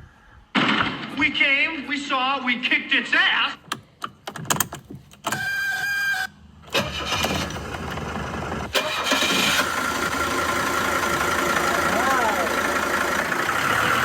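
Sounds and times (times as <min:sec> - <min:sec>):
starter whine: 0:05.2 - 0:14.0
diesel engine running: 0:06.6 - 0:14.0.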